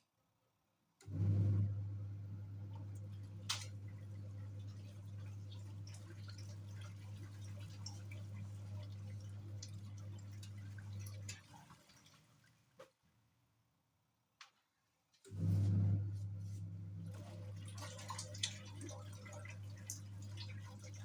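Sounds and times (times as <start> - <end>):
washing machine motor hum: 1.0 - 12.8, 15.2 - 21.0
water dripping and splashing: 2.7 - 12.9, 17.0 - 21.0.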